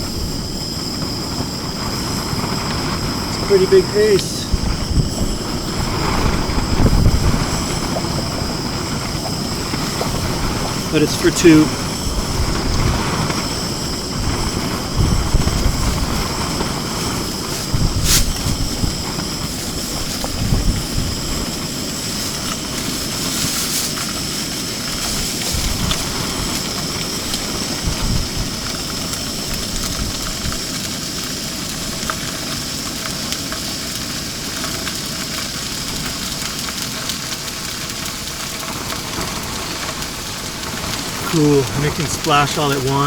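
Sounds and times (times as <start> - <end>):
wind buffeting microphone: 0.0 - 31.0
fish sizzling in a pan: 0.0 - 43.0.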